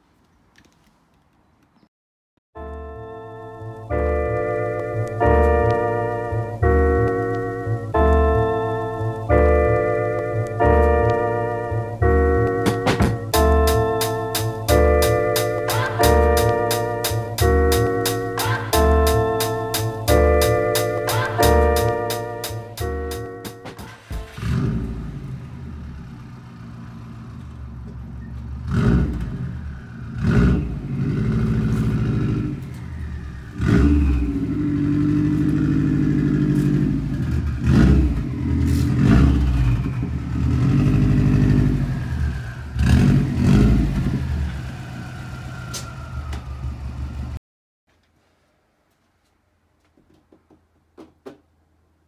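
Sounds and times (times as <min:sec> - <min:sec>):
car engine revving: 0:04.2 - 0:47.4
sharp knocks: 0:12.6 - 0:13.4, 0:49.9 - 0:51.5.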